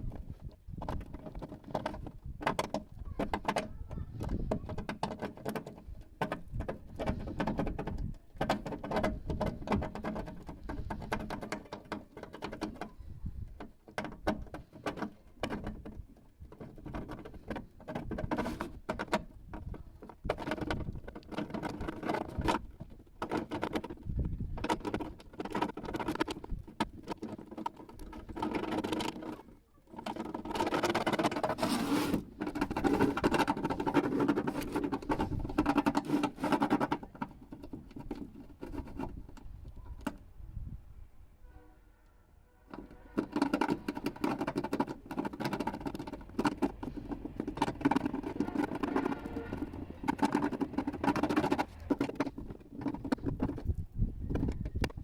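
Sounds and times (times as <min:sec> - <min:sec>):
clicks and taps of plastic pieces: 0:00.2 - 0:31.7, 0:42.7 - 0:55.0.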